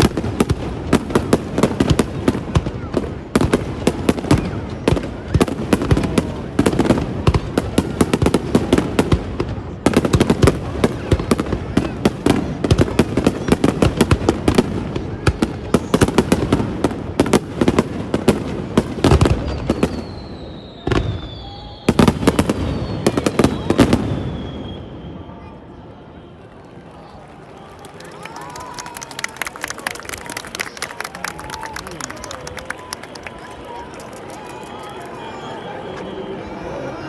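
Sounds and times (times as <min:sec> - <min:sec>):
fireworks bangs and crackles: 0:00.0 - 0:36.2
falling firework whistle: 0:19.1 - 0:37.0.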